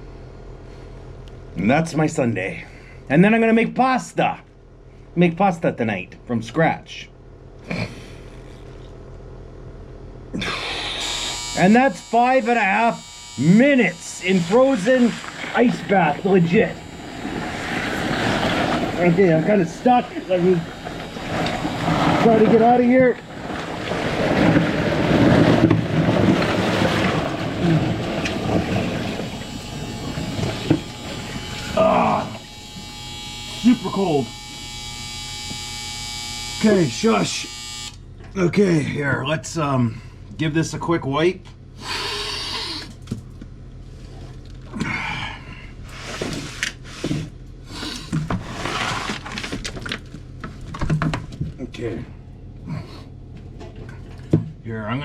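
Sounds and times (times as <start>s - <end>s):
water sloshing and splashing: 15.1s - 31.8s.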